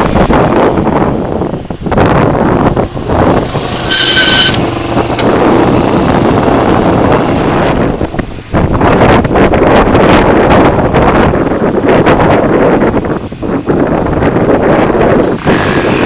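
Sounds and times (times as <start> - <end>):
wind noise on microphone: 0.0 - 16.0
dirt bike engine running: 2.0 - 11.0, 14.3 - 16.0.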